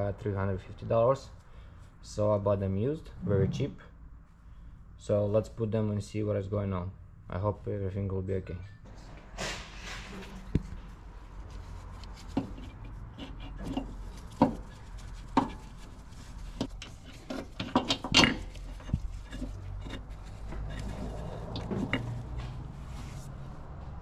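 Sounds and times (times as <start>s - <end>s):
low steady hum: 2.8s - 9.1s
knocks and clunks of engine mount: 16.6s - 19.5s, 20.6s - 22.3s.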